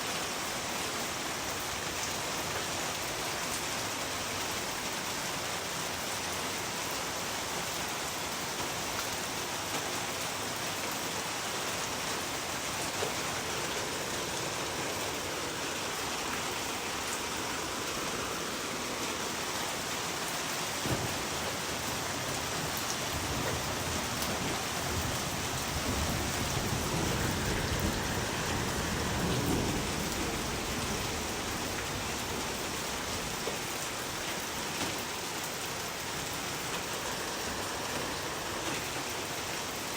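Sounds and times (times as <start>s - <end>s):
dense rain falling: 0.0s - 39.9s.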